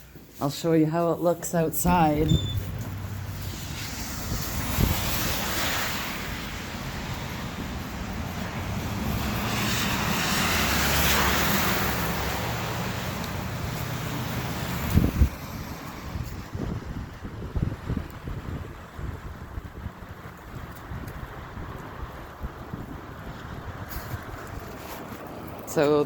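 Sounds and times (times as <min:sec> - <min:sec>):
vehicle passing: 0:01.9 - 0:16.9.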